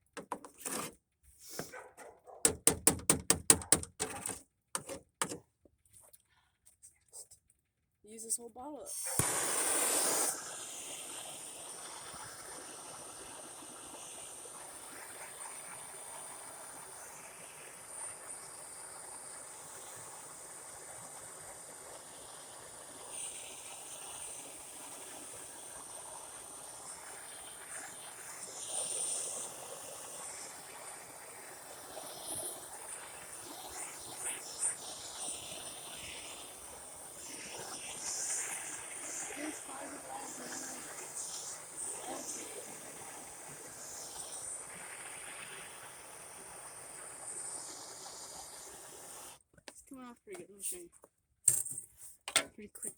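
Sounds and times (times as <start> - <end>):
hand torch flame hissing: 8.9 - 49.4.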